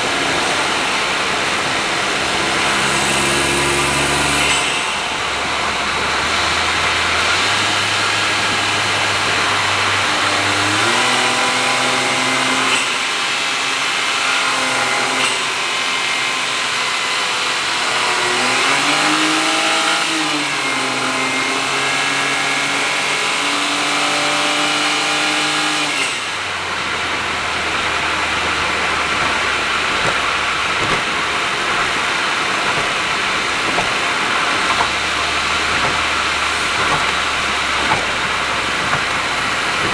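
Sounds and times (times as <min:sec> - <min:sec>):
car engine droning at speed: 0:26.8 - 0:39.9.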